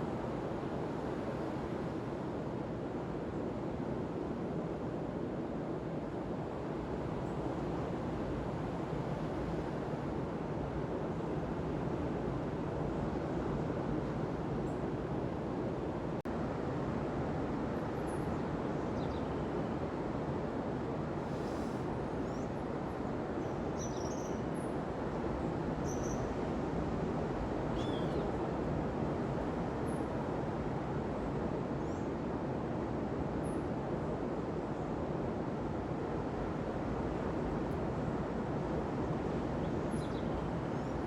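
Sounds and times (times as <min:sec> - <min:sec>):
ocean surf on a beach: 0:24.4 - 0:41.0.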